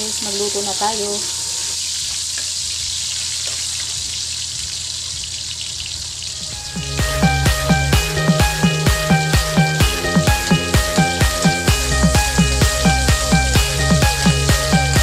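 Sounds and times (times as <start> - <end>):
onions sizzling in oil: 0.0 - 6.8
music with steady beat: 6.4 - 15.0.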